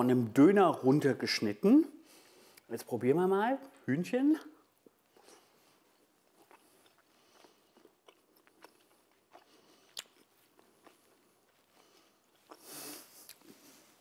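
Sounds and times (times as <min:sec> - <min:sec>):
man chewing food: 0:02.0 - 0:02.7, 0:04.6 - 0:14.0
soft mouth clicks: 0:09.3 - 0:10.3.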